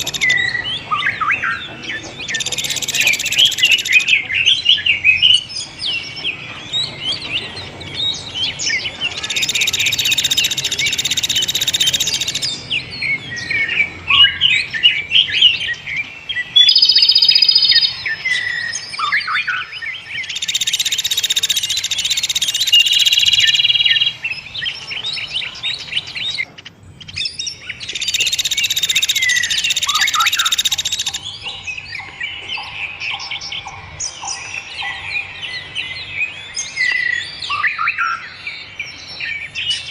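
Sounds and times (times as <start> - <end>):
songbirds chirping: 0.0 - 39.9
fast buzzing bird trills: 9.2 - 12.5, 20.3 - 24.2, 28.0 - 31.2.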